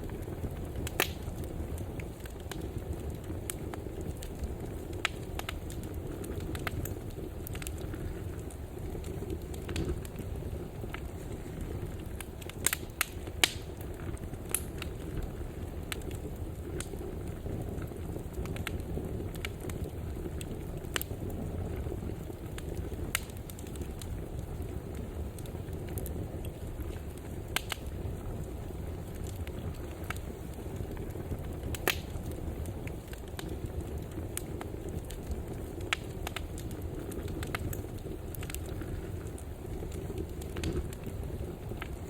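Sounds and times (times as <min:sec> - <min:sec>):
wood fire crackling and popping: 0:00.0 - 0:42.0.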